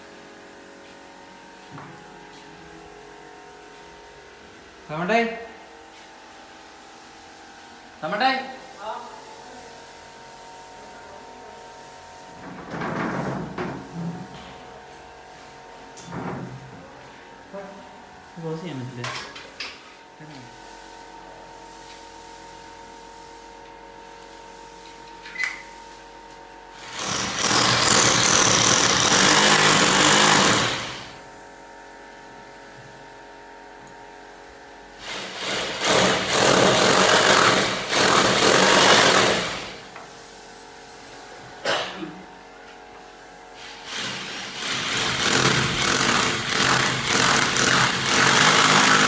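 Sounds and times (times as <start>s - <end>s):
handheld power tool running: 26.7s - 31.2s, 35.0s - 40.0s, 43.7s - 49.0s.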